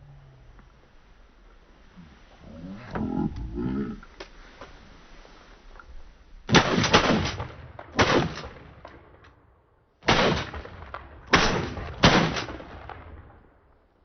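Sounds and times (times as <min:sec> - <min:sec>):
shotgun shots: 0:06.5 - 0:09.2, 0:10.0 - 0:13.4.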